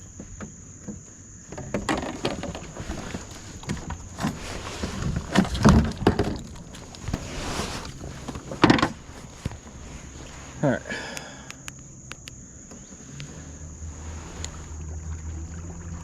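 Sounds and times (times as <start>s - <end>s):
gear knocking against kayak hull: 0.0s - 9.8s.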